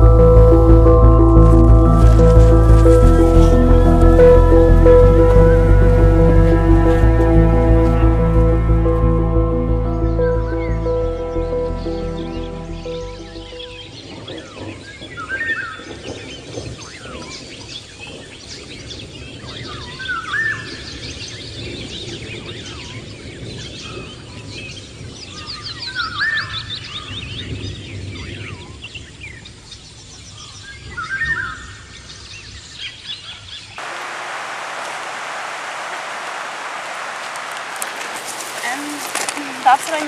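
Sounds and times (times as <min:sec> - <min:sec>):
low rumble: 0:00.0 - 0:14.0
birds chirping: 0:00.0 - 0:16.5, 0:33.8 - 0:40.0
steady hiss: 0:33.8 - 0:40.0.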